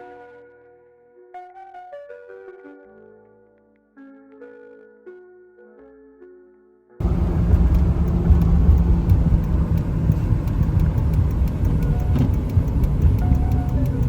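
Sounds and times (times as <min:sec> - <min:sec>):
soft music: 0:00.0 - 0:14.0
vehicle road and engine rumble: 0:07.0 - 0:14.0.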